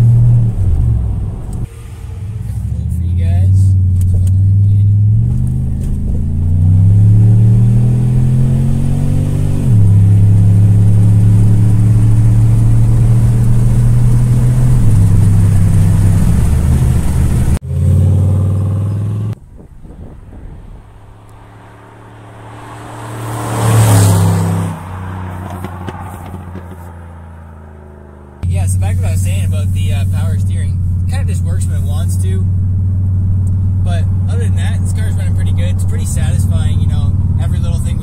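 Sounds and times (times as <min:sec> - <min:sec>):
car driving past: 0:00.0 - 0:03.1, 0:03.8 - 0:28.4
car engine accelerating: 0:00.0 - 0:38.0.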